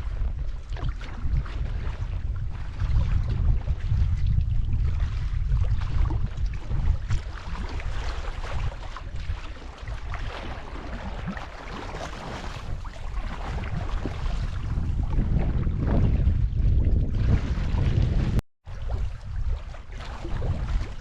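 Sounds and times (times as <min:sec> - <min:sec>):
wind rumbling on microphone: 0:00.0 - 0:21.0
water splashing and dripping: 0:05.4 - 0:21.0.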